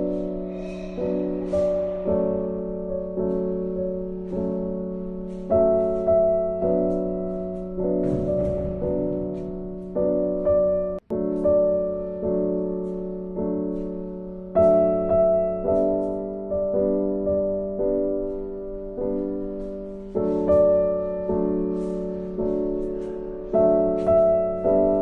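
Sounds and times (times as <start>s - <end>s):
gentle piano chords: 0.0s - 25.0s.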